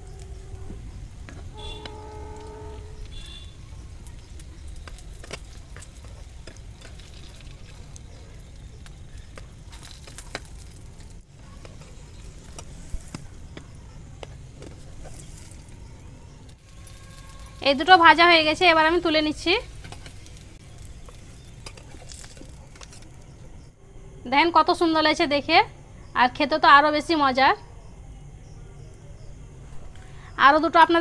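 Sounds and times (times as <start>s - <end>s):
oil sizzling in a pan: 0.0s - 23.2s.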